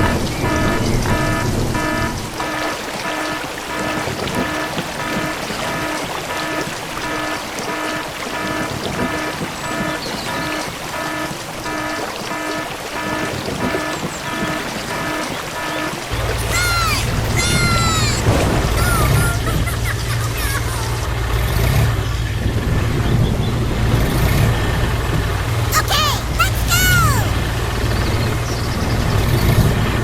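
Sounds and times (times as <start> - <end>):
watery rushing hiss: 2.2 - 21.8.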